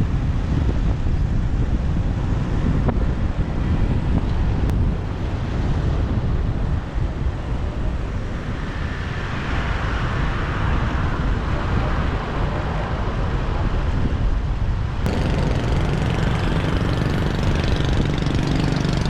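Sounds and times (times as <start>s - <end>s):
street traffic: 0.0s - 19.0s
wind rumbling on microphone: 0.0s - 19.0s
motorbike engine running: 15.1s - 19.0s.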